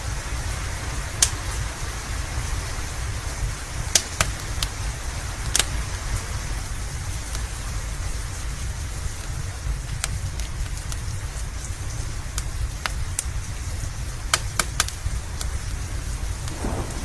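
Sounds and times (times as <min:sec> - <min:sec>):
steady rain: 0:00.0 - 0:17.0
wood fire crackling: 0:00.0 - 0:17.0
low rumble: 0:15.1 - 0:17.0.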